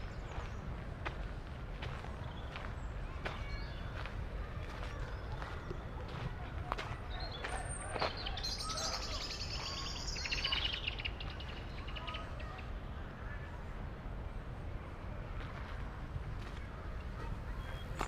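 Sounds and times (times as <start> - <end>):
birds chirping: 0.0 - 0.9, 1.8 - 12.7, 17.3 - 18.0
low city rumble: 0.0 - 18.0.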